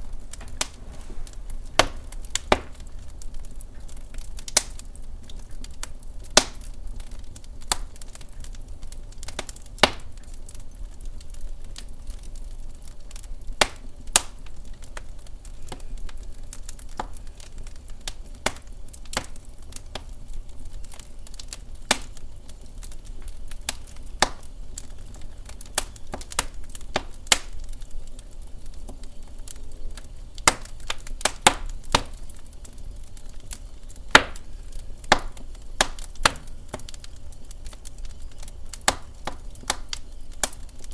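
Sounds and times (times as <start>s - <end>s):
low steady rumble: 0.0s - 7.0s
wood fire crackling: 0.0s - 40.9s.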